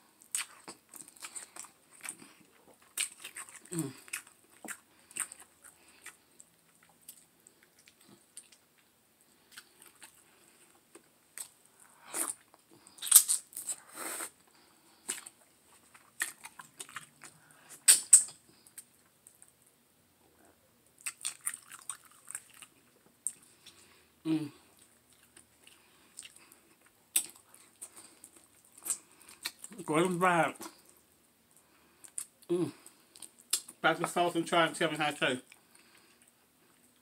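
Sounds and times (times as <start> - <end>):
wet chewing: 0.2 - 13.8, 14.5 - 19.6, 21.0 - 23.9, 24.6 - 29.9
lip smacks: 15.0 - 19.5, 33.2 - 33.8.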